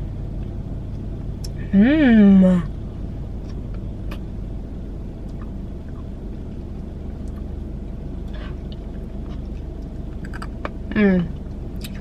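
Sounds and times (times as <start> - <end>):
car idling with air conditioning: 0.0 - 12.0.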